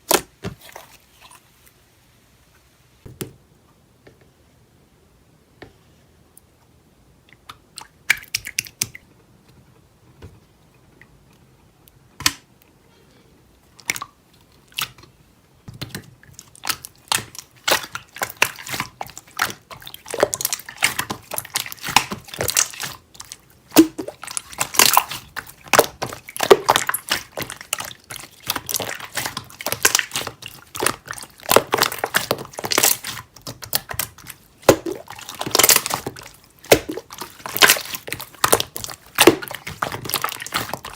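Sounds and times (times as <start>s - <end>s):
slime clicking and squishing: 7.3s - 9.0s, 13.8s - 15.1s, 15.8s - 40.9s.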